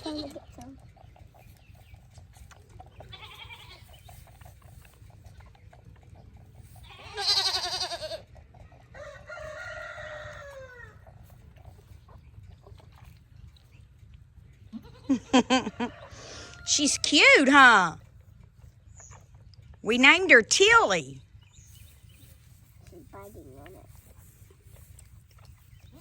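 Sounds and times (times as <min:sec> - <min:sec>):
goats bleating: 0:03.1 - 0:03.8, 0:06.8 - 0:08.3, 0:14.7 - 0:15.3
rooster crowing: 0:09.0 - 0:10.9.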